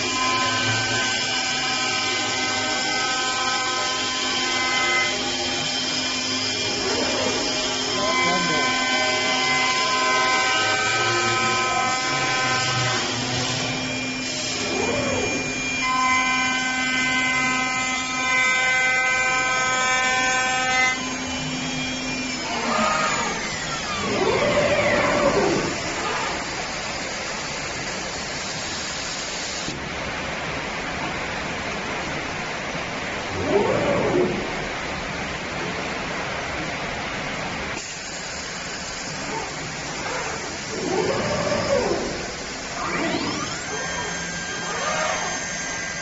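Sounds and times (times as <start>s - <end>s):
rushing wood cutting noise: 0.0s - 28.3s, 37.8s - 46.0s
lathe spindle whine: 0.0s - 28.4s, 38.8s - 46.0s.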